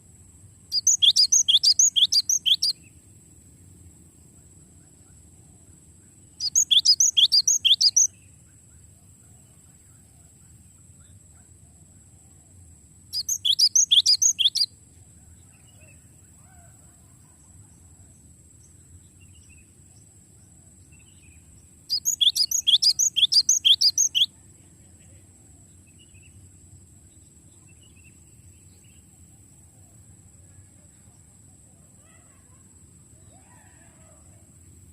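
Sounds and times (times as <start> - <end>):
bird singing rapid high notes: 0.7 - 2.7, 6.4 - 8.1, 13.2 - 14.7, 21.9 - 24.3.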